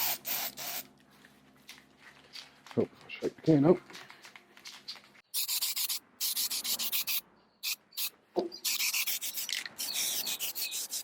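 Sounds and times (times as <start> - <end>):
spray paint can hissing: 0.0 - 0.8, 5.3 - 11.0.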